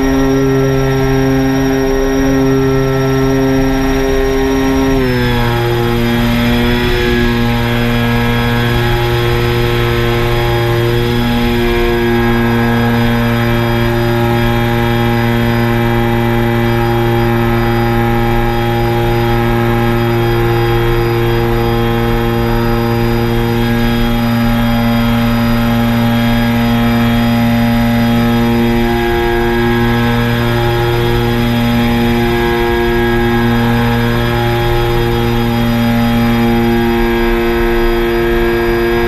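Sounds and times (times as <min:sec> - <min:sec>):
drone propellers humming: 0:00.0 - 0:39.0.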